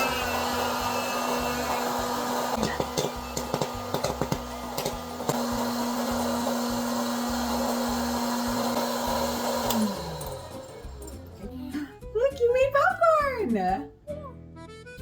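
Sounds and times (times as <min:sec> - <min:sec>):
popcorn kernels popping: 0:00.0 - 0:11.2
popcorn popper fan hum: 0:00.0 - 0:11.4.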